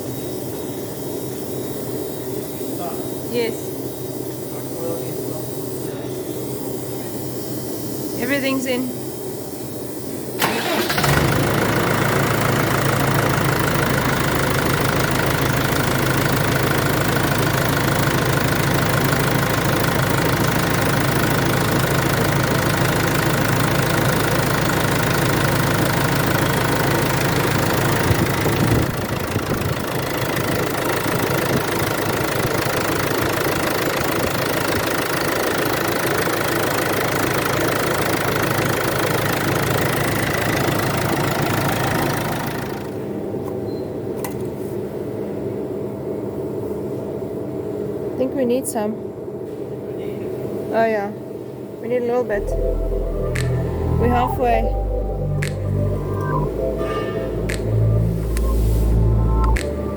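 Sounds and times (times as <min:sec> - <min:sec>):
starter cranking diesel engine: 0:10.4 - 0:43.1
diesel engine idling: 0:10.4 - 0:43.3, 0:52.3 - 0:59.9.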